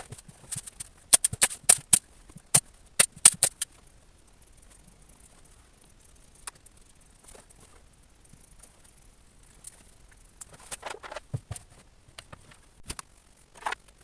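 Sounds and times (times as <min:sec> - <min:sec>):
sharp knocks and clicks of tools: 0:01.1 - 0:03.7.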